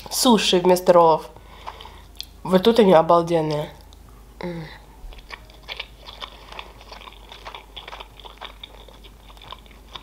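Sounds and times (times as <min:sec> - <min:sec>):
close-miked chewing: 0:00.8 - 0:02.4, 0:05.0 - 0:10.0.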